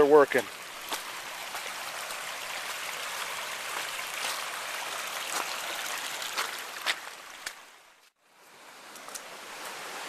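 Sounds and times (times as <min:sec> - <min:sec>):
river rushing: 0:00.0 - 0:10.0
soft footsteps on trail: 0:00.2 - 0:08.2.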